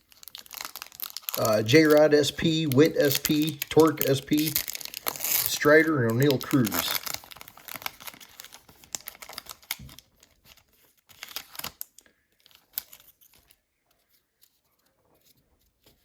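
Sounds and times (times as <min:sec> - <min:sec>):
foil wrapper crackling: 0:00.0 - 0:13.6
cards clicking: 0:01.3 - 0:07.2.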